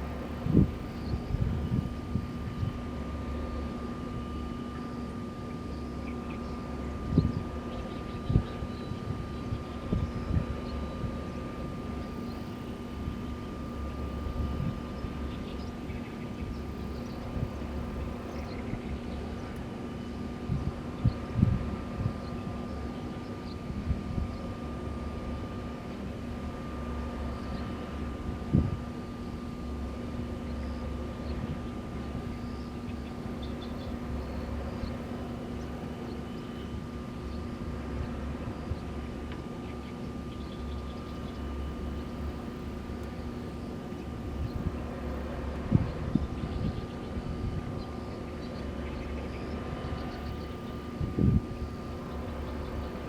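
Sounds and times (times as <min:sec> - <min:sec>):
wind buffeting microphone: 0:00.0 - 0:04.4, 0:06.6 - 0:19.5, 0:20.2 - 0:25.1, 0:27.6 - 0:29.8, 0:44.1 - 0:53.0
constant hum: 0:00.0 - 0:53.0
thin high whine: 0:00.0 - 0:53.0
wind turbines rumbling: 0:00.0 - 0:53.0.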